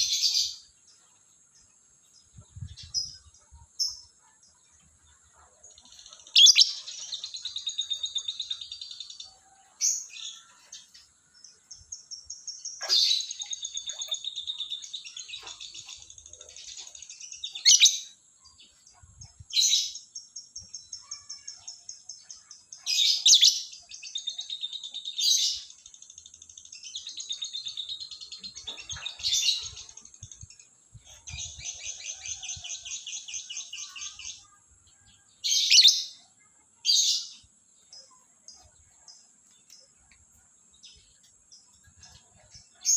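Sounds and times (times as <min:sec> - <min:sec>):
bird shrill calls: 0:06.4 - 0:06.8.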